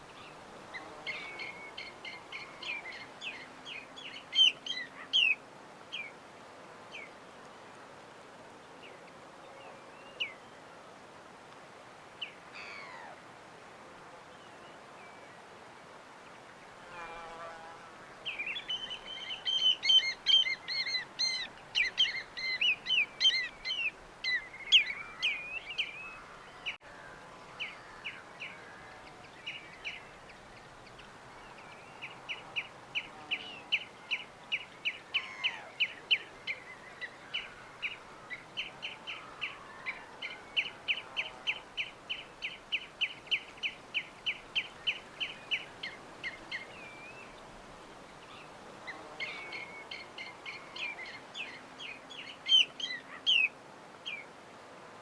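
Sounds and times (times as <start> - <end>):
small birds chirping: 0.0 - 6.1, 18.2 - 26.8, 27.4 - 54.3.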